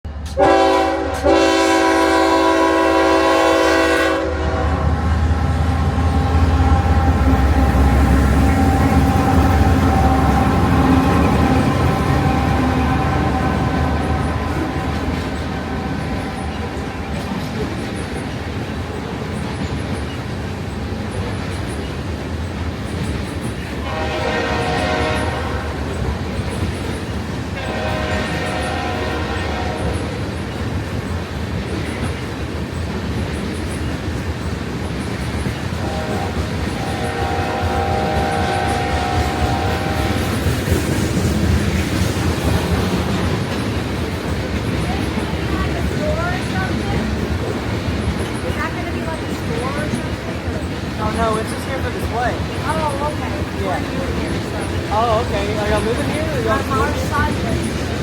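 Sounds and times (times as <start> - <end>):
train rumbling: 0.0 - 58.0
locomotive air horn chord: 0.3 - 17.0, 23.8 - 25.9, 27.6 - 30.0, 35.8 - 40.4.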